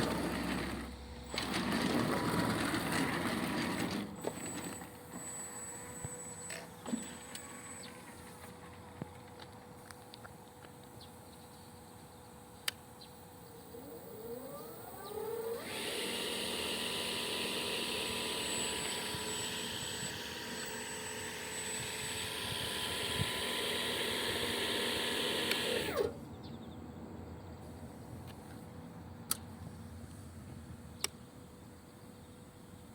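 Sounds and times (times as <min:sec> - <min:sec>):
electric mower motor whining: 0:00.0 - 0:08.6, 0:13.2 - 0:26.3.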